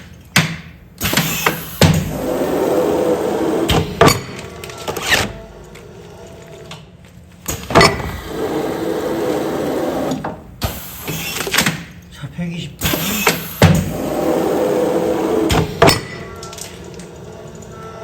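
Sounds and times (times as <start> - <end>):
sealing machine running: 1.0 - 6.9, 7.5 - 12.0, 12.8 - 17.8
sharp mechanical clunks: 12.8 - 14.0.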